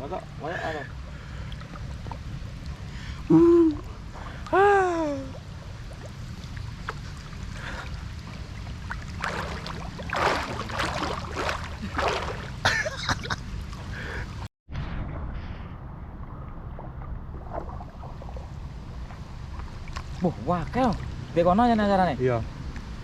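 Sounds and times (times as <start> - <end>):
steady low rumble: 0.0 - 23.0
water splashing from swimmers: 3.8 - 13.0.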